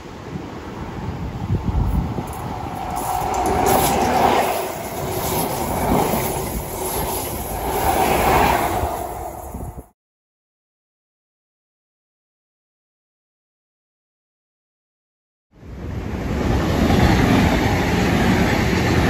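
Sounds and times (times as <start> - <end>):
passenger train passing: 0.0 - 9.9, 15.6 - 19.0.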